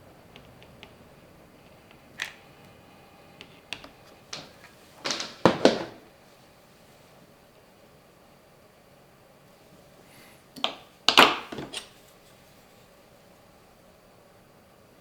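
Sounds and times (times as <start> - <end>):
tools knocking and clattering: 4.3 - 6.0, 10.6 - 11.9.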